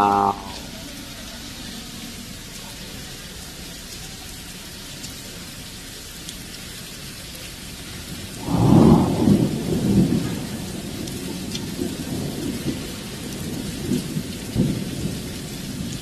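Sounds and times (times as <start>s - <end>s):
steady rain downpour: 0.0s - 16.0s
thunder crack rumbling: 8.1s - 16.0s.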